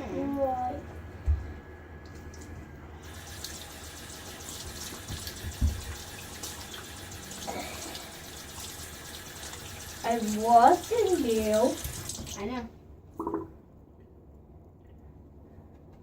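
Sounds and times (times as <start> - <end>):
sink tap running: 2.0 - 12.6.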